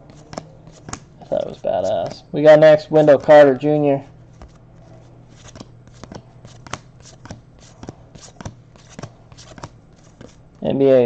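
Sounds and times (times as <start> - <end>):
trading cards flipped by hand: 0.0 - 2.2, 4.3 - 4.7, 5.3 - 10.4.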